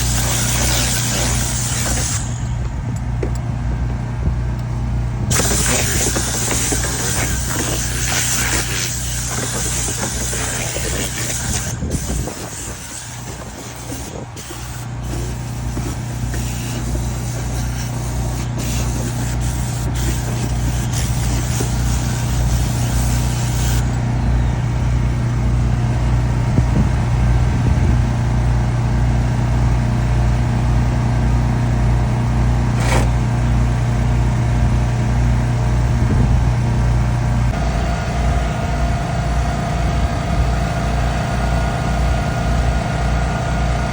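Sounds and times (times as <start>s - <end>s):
air compressor humming: 0.0s - 43.9s
hiss of blown air: 5.3s - 23.8s.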